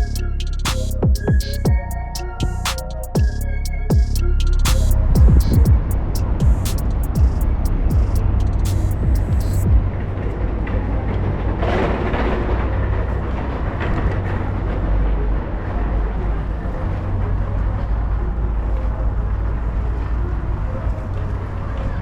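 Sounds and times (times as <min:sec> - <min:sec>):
subway train rumbling: 0:05.8 - 0:22.0.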